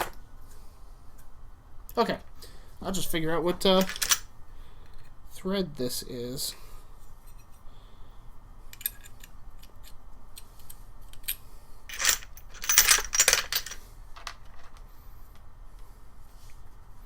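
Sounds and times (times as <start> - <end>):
small metal parts clinking: 3.7 - 4.3, 8.7 - 10.0, 10.6 - 14.8.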